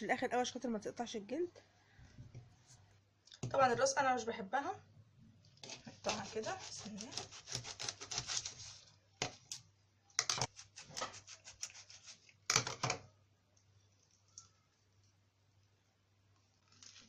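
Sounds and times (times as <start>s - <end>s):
knife crunching through fish: 5.7s - 8.8s
sharp knife cuts and knocks: 6.1s - 8.5s.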